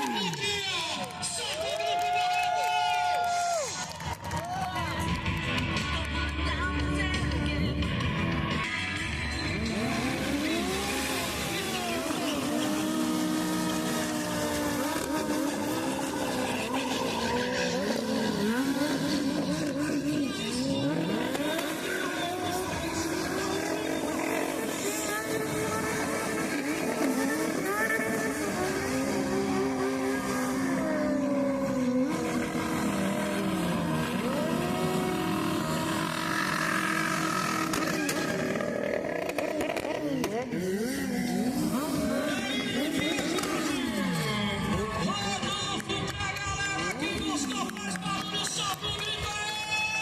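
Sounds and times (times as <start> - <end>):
motorcycle engine revving hard: 9.2 - 45.7.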